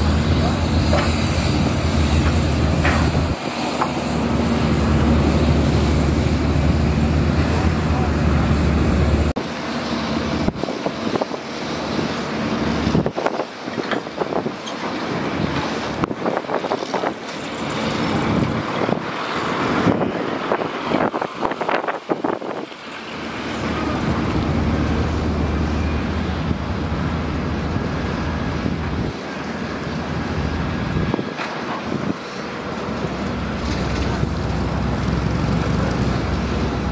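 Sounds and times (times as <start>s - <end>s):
earthmoving machine diesel engine: 0.0s - 36.9s
sharp knocks and clanks: 2.2s - 3.2s.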